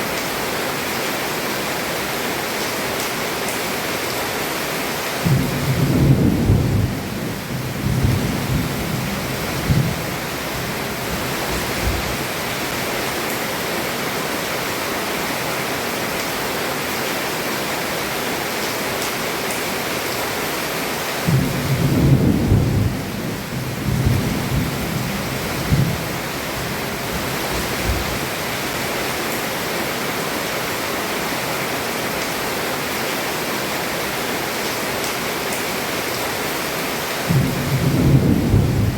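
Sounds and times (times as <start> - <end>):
heavy rain: 0.0 - 38.9
thunder rumbling: 5.2 - 12.6, 21.2 - 28.7, 37.3 - 38.9.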